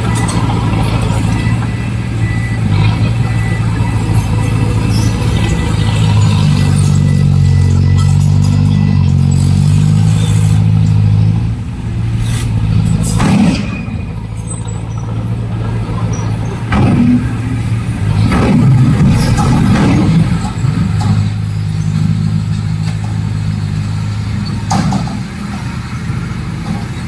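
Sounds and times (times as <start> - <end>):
heavy diesel engine running: 0.0 - 27.0
short loud rushes of noise: 11.6 - 15.2.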